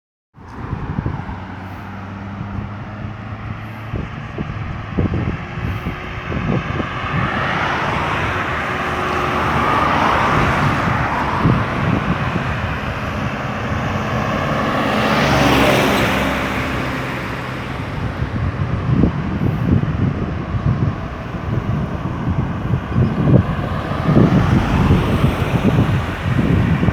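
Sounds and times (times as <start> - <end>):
highway traffic hum: 0.4 - 26.9
vehicles passing close: 0.4 - 26.9.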